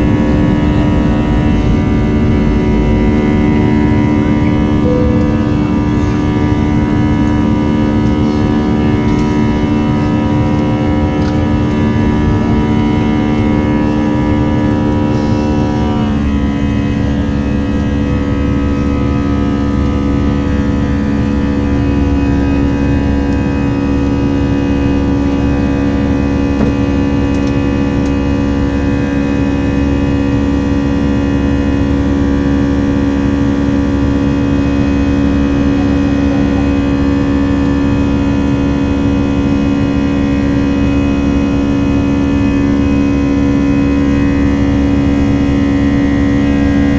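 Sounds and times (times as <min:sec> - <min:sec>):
jet engines whining in cabin: 0:00.0 - 0:46.9.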